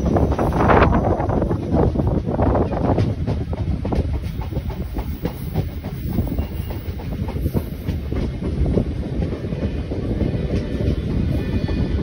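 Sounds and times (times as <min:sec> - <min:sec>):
train wheels rumbling on rails: 0:00.0 - 0:12.0
clicks and clacks of track: 0:01.4 - 0:11.2.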